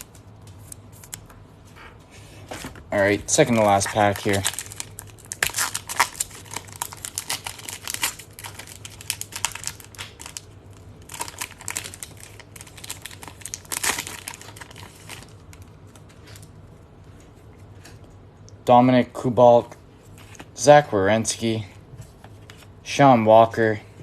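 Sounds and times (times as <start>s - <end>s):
card pack wrapper crinkling: 3.3s - 16.5s.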